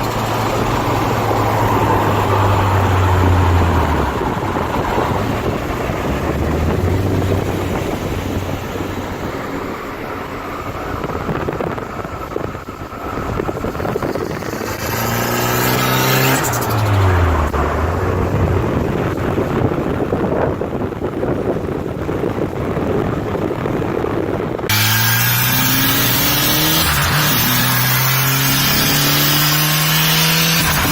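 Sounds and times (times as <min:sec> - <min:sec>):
turbocharged car engine revving: 0:00.0 - 0:20.1, 0:24.6 - 0:30.9.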